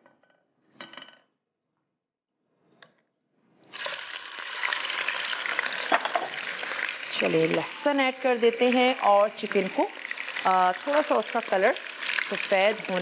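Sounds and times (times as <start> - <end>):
chicken sizzling in hot oil: 3.7 - 13.0.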